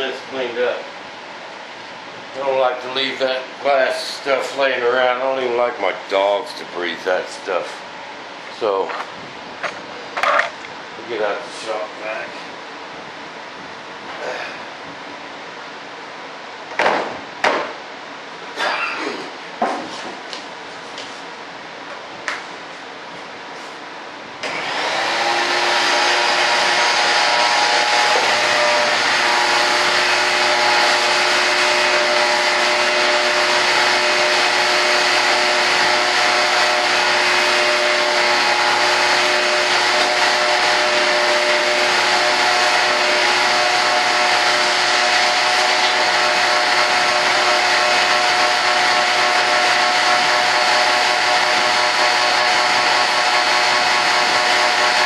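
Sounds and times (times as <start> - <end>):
shop vac motor whining: 24.4 - 55.0.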